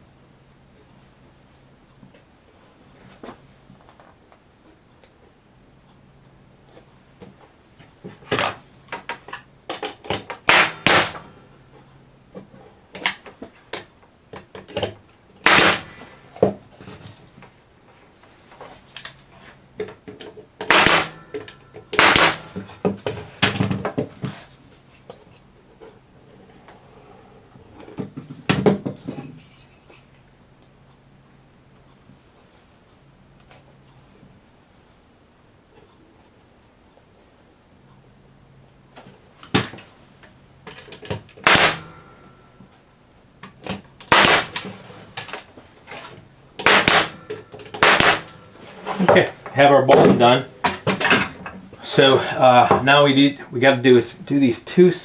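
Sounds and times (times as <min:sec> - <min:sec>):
sharp bangs: 0:10.4 - 0:11.6, 0:15.4 - 0:16.3, 0:20.6 - 0:22.9, 0:41.4 - 0:42.4, 0:44.0 - 0:44.8, 0:46.6 - 0:49.0.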